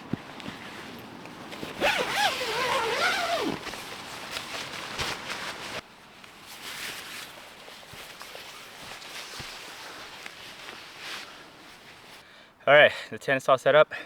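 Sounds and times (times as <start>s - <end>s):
tent zipper rasp: 1.6s - 5.8s.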